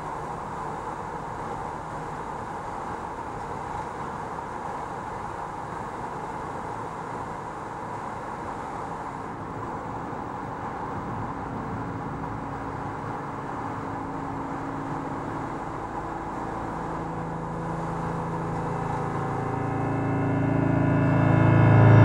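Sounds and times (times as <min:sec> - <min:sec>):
car tyre noise in tunnel: 0:00.0 - 0:22.0
low drone tones: 0:11.2 - 0:22.0.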